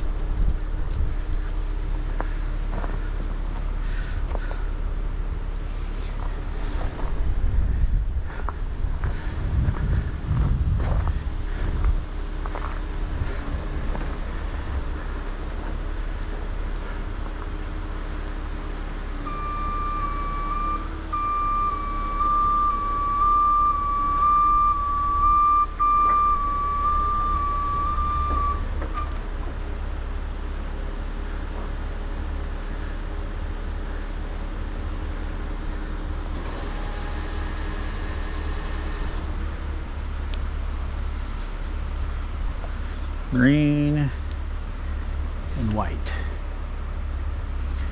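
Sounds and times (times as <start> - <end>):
diesel truck engine running: 0.0 - 47.9
high thin whistling tone: 19.3 - 29.1.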